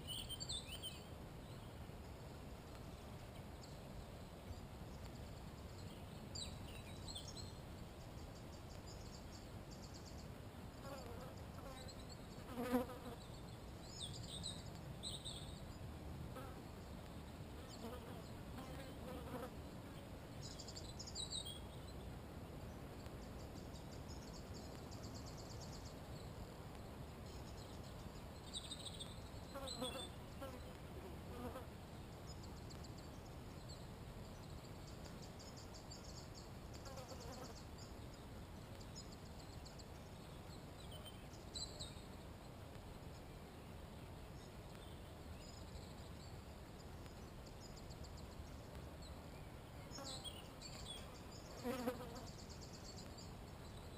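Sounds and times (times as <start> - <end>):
songbirds singing trills: 0.0 - 15.9, 20.0 - 26.4, 27.2 - 30.8, 31.4 - 53.9
insects buzzing: 6.4 - 13.3, 49.9 - 53.9.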